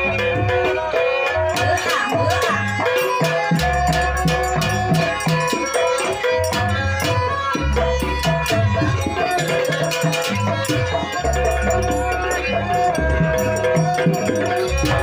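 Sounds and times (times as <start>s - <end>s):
drums: 0.0s - 15.0s.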